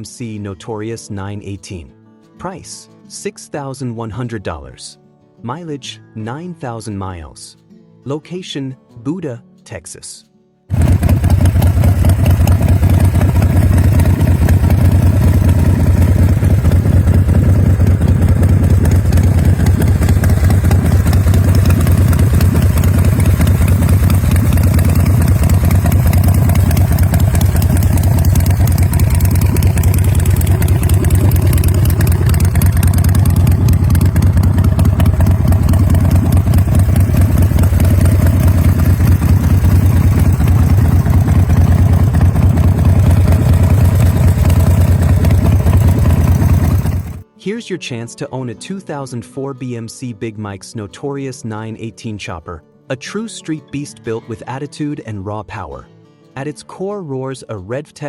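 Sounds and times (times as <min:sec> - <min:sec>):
motorcycle engine idling: 0:10.7 - 0:47.2.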